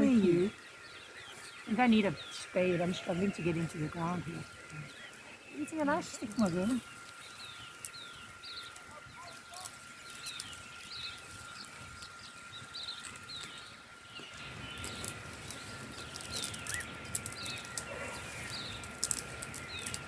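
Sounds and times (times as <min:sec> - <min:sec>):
bird chirping: 0:00.0 - 0:20.0
digging in hard soil: 0:05.6 - 0:20.0.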